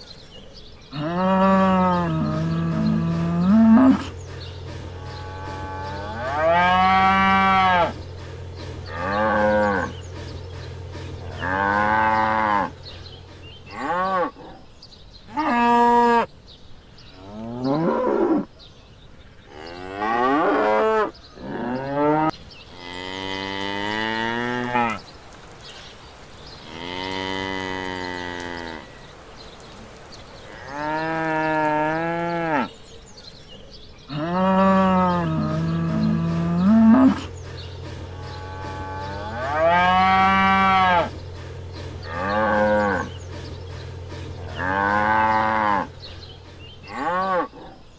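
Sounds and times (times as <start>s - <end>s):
cattle mooing: 0.9s - 8.1s, 8.9s - 10.0s, 11.2s - 12.9s, 13.7s - 14.6s, 19.5s - 25.0s, 26.6s - 29.0s, 30.4s - 32.8s, 34.1s - 47.8s.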